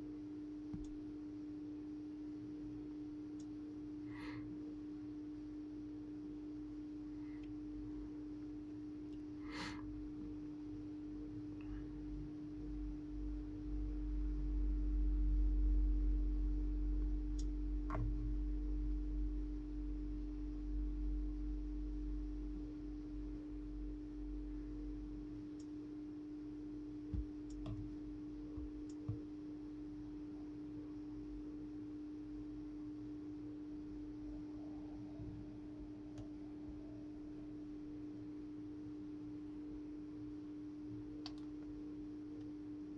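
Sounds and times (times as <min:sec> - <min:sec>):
steady hum: 0:00.0 - 0:42.9.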